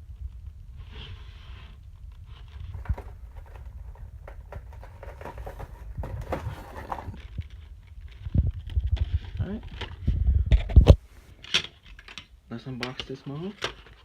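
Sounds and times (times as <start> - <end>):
cardboard sliding rub: 0.8 - 7.2
cardboard box taps and rustles: 2.7 - 7.4.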